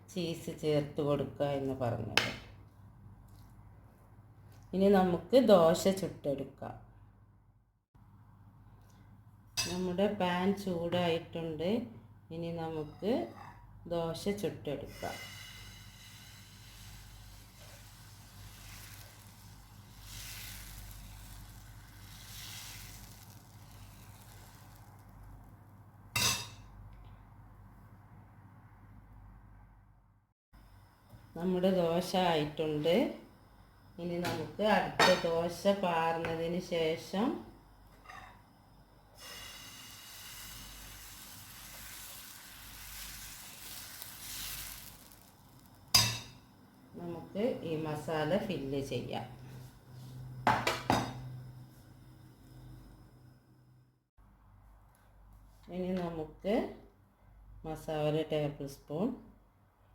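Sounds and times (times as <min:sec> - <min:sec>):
batter sizzling on a pan: 0:14.9 - 0:25.6, 0:39.2 - 0:46.4.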